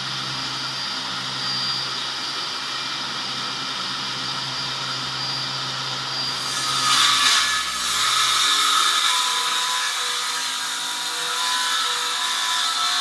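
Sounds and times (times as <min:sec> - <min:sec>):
circular saw motor whine: 0:00.0 - 0:13.0
saw blade cutting board: 0:06.0 - 0:13.0.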